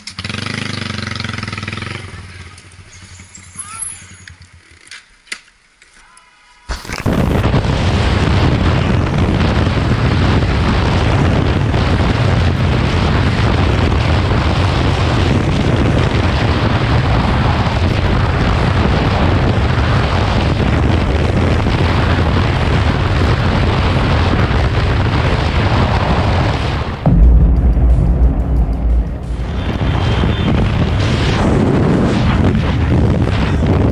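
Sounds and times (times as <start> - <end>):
motorcycle running: 0.0 - 2.9
wind buffeting microphone: 7.1 - 33.9.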